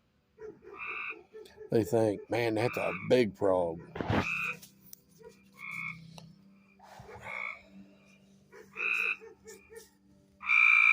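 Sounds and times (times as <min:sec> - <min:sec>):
treefrogs calling: 0:00.7 - 0:04.6, 0:05.6 - 0:10.9
rapid pulsing frog call: 0:02.6 - 0:03.2, 0:04.0 - 0:04.6, 0:05.6 - 0:06.0, 0:07.2 - 0:07.8, 0:08.7 - 0:09.7, 0:10.4 - 0:10.9.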